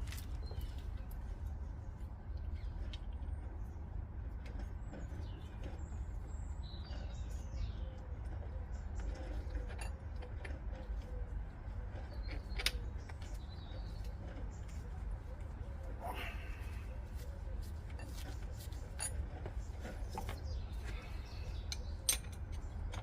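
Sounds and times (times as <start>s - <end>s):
low background rumble: 0.0s - 23.0s
metal parts clicking and knocking: 9.0s - 11.1s, 11.9s - 13.4s, 17.8s - 20.4s, 21.6s - 23.0s
faint bird calls: 10.9s - 18.4s.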